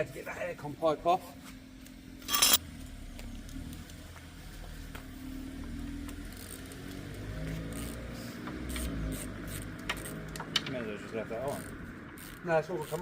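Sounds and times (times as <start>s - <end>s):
hand tools clicking: 2.2s - 2.6s, 8.6s - 13.0s
sharp metallic clank: 2.2s - 2.6s.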